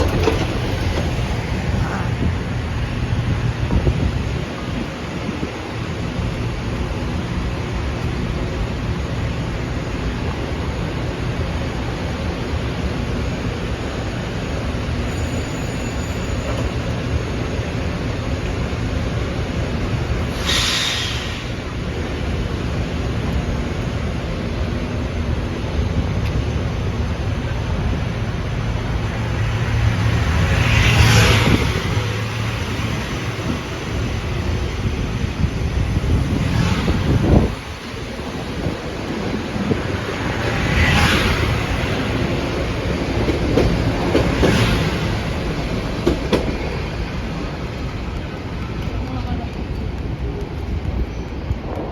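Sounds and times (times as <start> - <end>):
wind on microphone: 0.0 - 7.0, 29.4 - 51.9
electric train rumbling: 0.0 - 51.9
train hiss: 20.1 - 22.4.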